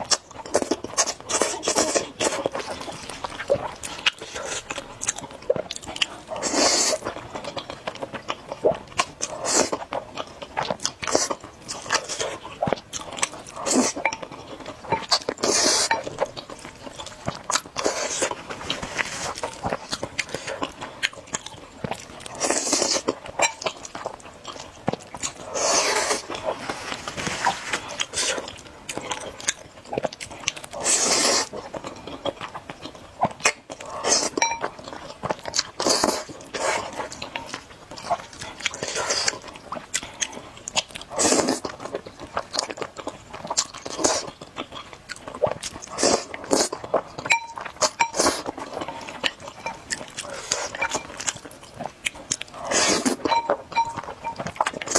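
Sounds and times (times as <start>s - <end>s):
wet chewing and smacking: 0.0s - 54.9s
noodle slurps: 25.4s - 28.5s, 52.6s - 53.2s.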